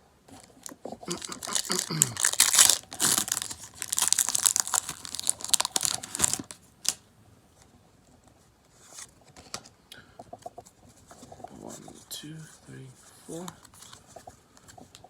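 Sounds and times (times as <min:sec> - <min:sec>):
foil wrapper tearing and crinkling: 0:01.1 - 0:07.0.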